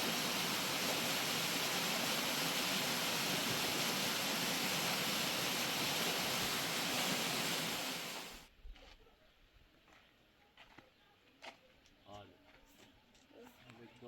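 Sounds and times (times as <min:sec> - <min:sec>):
river water rushing: 0:00.0 - 0:08.4.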